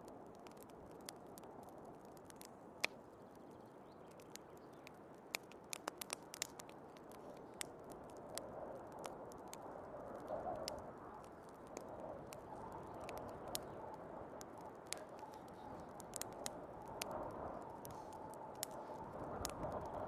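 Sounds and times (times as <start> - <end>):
fire popping: 0.0 - 20.0
wood fire crackling: 0.0 - 20.0
snowstorm wind rushing: 11.8 - 20.0.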